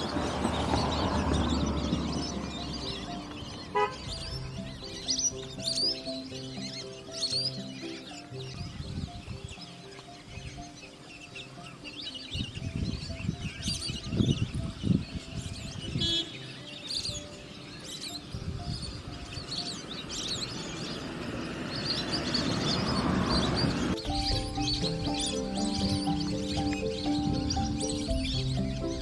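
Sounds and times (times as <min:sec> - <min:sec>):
low rumbling: 0:00.0 - 0:07.0, 0:20.4 - 0:29.0
small birds chirping: 0:00.0 - 0:29.0.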